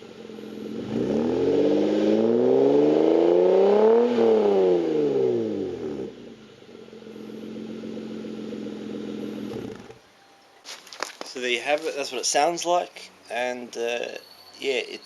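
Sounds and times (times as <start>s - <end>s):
car engine revving and idling: 0.0s - 10.0s.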